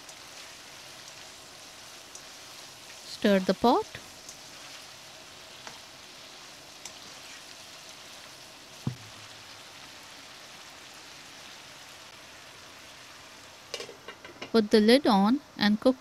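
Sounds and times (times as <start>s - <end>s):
food sizzling in a frying pan: 0.0s - 15.5s
short knock: 8.8s - 9.2s.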